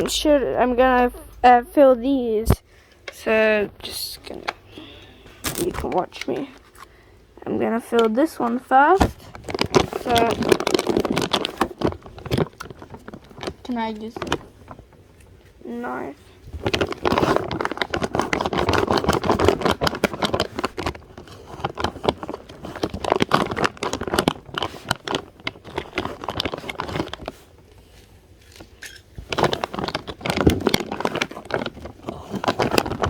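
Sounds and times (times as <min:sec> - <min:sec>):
plastic bag crinkling: 0:03.9 - 0:07.0, 0:08.2 - 0:33.0
knife cutting plastic bag: 0:05.4 - 0:06.0.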